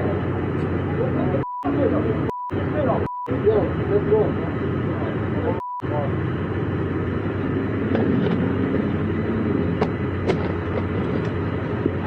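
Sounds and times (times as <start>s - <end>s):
road noise: 0.0s - 12.0s
vehicle engine low hum: 0.0s - 12.0s.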